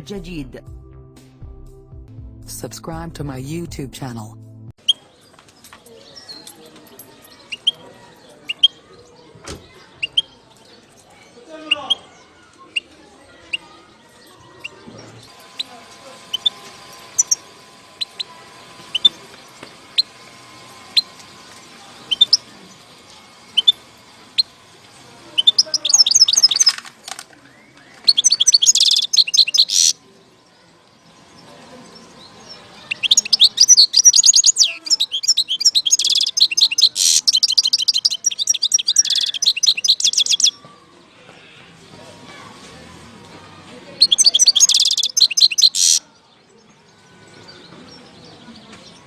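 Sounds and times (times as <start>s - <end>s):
goldfinch call notes: 15.5s - 20.2s, 28.0s - 30.0s, 32.9s - 40.6s, 44.0s - 46.0s
goldfinch twittering song: 16.3s - 17.4s, 25.4s - 26.7s, 28.0s - 29.9s, 32.8s - 40.6s, 44.0s - 46.0s.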